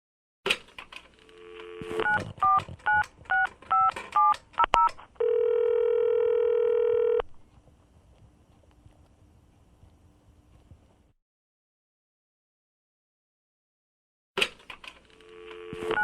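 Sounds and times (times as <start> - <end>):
telephone dial tone: 1.2 - 7.3, 15.2 - 16.0
telephone ringback tone: 5.2 - 7.2, 15.3 - 16.0.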